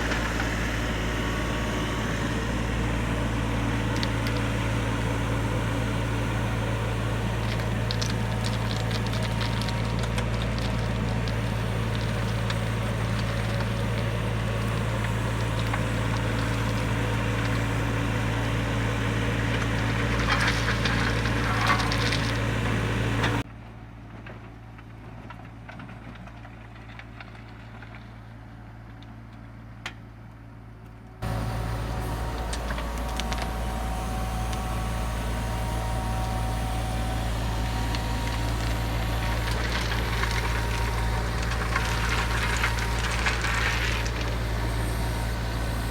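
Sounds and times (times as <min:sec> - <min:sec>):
excavator engine running: 0:00.0 - 0:23.5, 0:31.0 - 0:45.9
bucket scraping dirt and stone: 0:03.0 - 0:23.4, 0:31.2 - 0:45.9.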